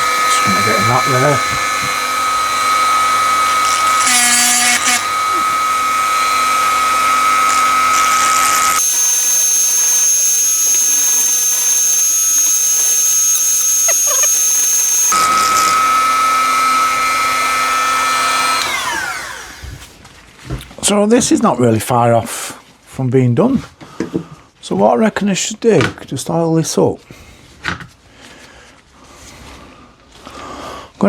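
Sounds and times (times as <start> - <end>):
rotary tool whining: 0.0 - 19.8.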